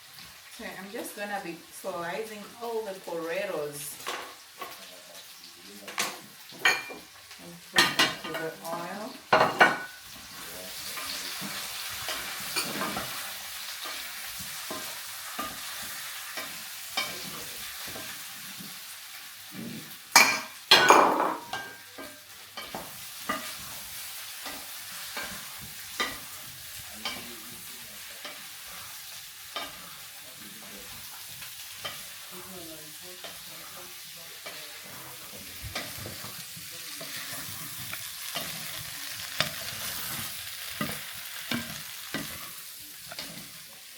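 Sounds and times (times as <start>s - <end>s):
potatoes sizzling in oil: 0.0s - 43.9s
utensil scraping a pan: 34.5s - 43.6s.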